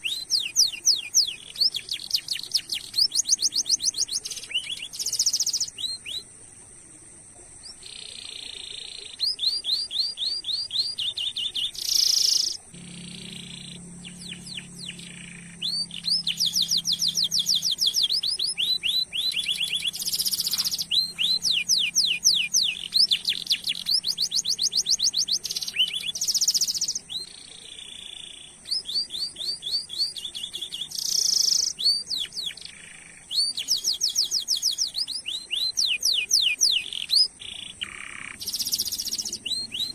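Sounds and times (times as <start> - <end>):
canary singing trills: 0.0 - 6.4, 7.6 - 39.9
faint steady high tone: 0.0 - 39.9
loud buzzing bursts: 12.8 - 17.0.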